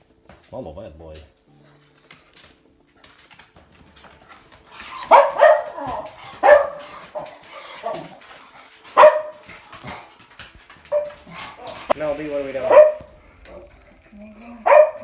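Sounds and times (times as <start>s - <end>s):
dog barking: 4.7s - 10.1s, 10.9s - 12.0s, 12.6s - 13.2s, 14.6s - 15.0s.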